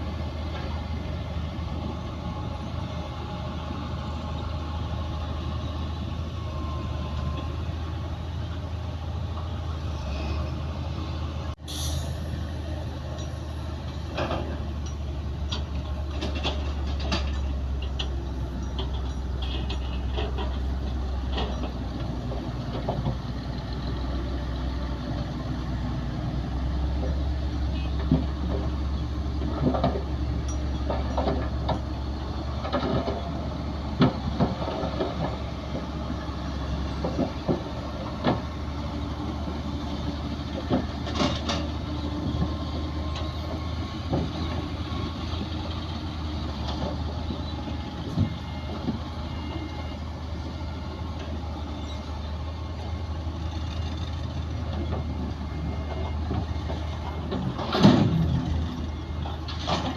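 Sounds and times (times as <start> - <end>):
heavy machinery diesel engines droning: 0.0 - 59.9
metallic clanks and knocks: 14.1 - 23.2, 29.4 - 33.3, 40.5 - 43.3, 55.9 - 58.6.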